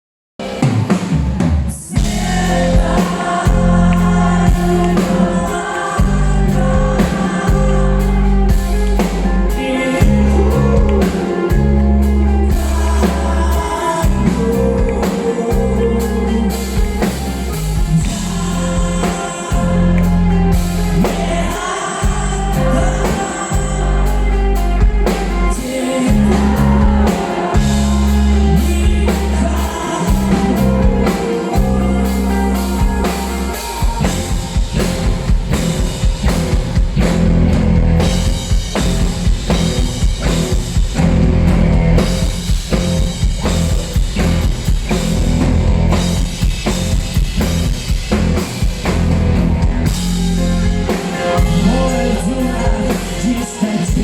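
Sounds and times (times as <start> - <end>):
rock band playing live: 0.4 - 54.0
person singing: 1.2 - 37.1, 50.0 - 54.0.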